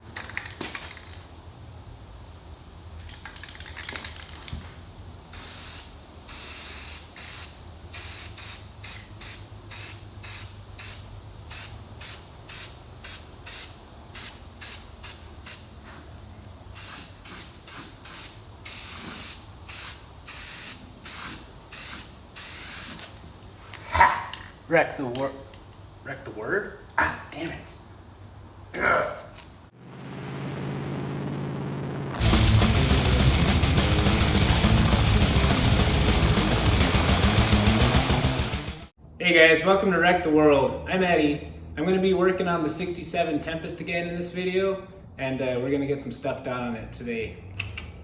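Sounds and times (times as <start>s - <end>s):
spray hissing in bursts: 5.3s - 16.1s, 16.7s - 23.1s.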